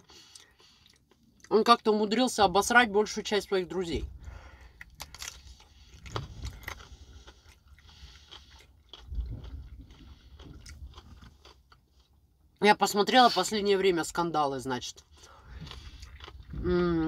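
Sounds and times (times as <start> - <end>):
person chewing broccoli: 0.0 - 1.5, 4.1 - 12.6, 15.0 - 17.0
dull low thumps: 9.0 - 11.3.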